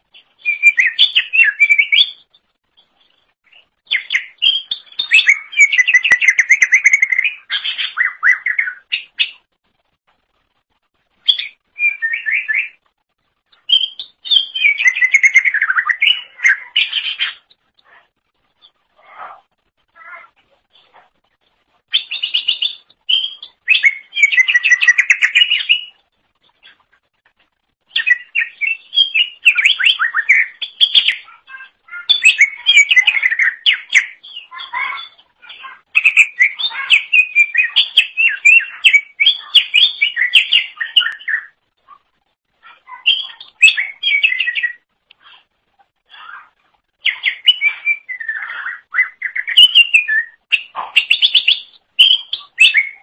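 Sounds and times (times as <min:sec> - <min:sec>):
bird singing fast chirps: 0:00.2 - 0:09.5, 0:11.2 - 0:12.8, 0:13.5 - 0:18.0, 0:21.9 - 0:26.0, 0:27.9 - 0:41.6, 0:42.6 - 0:44.9, 0:47.0 - 0:53.0.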